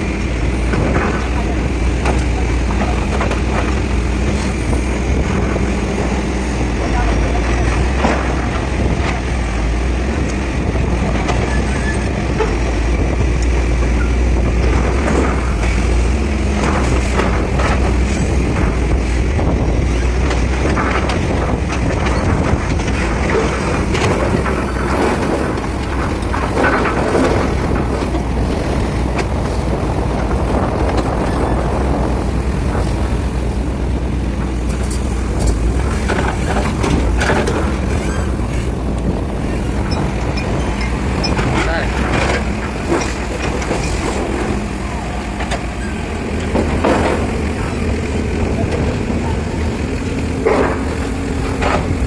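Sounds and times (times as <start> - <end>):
excavator diesel engine running: 0.0 - 52.0
clattering and knocking: 20.0 - 52.0.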